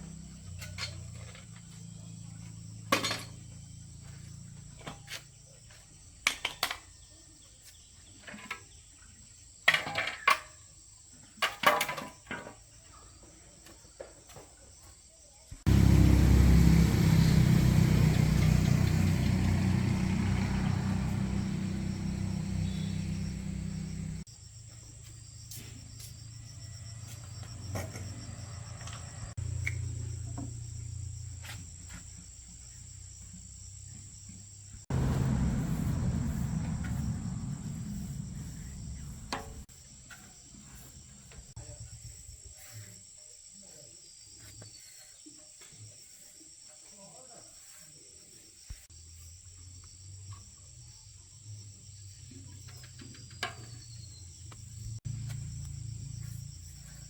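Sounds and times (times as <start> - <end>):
loud steady rush with low rumble: 34.9 - 39.6.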